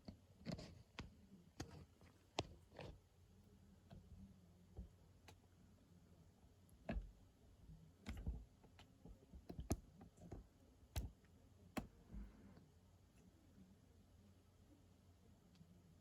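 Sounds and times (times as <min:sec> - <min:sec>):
light clicks and taps: 0:00.0 - 0:03.0, 0:08.0 - 0:12.6.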